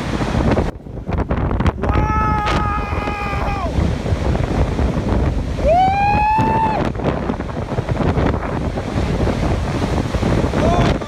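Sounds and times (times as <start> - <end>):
wind buffeting microphone: 0.0 - 11.0
person shouting: 1.9 - 3.8, 5.6 - 6.8, 10.6 - 11.0.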